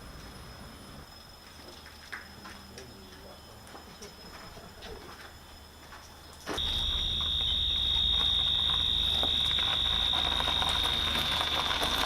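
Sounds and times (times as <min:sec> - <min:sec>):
high-pitched electronic alarm tone: 0:06.6 - 0:12.0.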